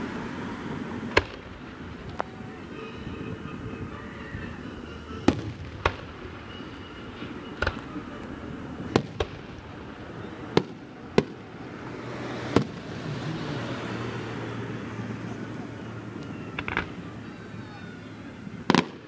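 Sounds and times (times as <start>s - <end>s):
fireworks bangs: 0.8s - 13.1s, 16.4s - 17.4s, 18.3s - 19.0s.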